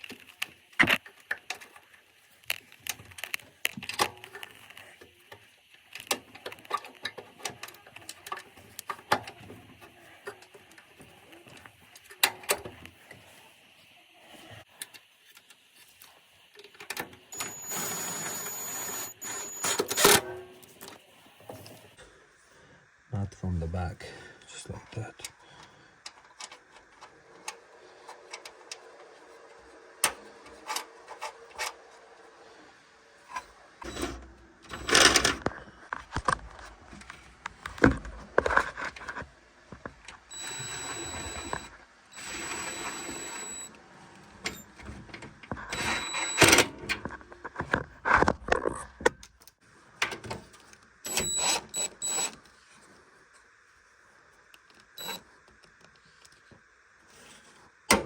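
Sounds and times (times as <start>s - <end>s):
power screwdriver whining: 17.3s - 20.2s, 40.3s - 43.8s, 45.7s - 46.7s, 51.1s - 52.4s, 55.0s - 55.2s.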